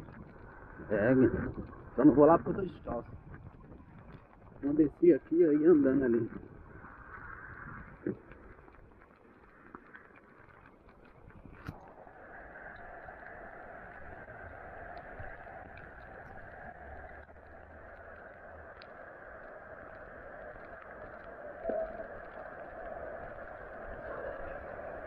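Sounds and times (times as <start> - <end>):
heavy rain on water: 0.0 - 25.0.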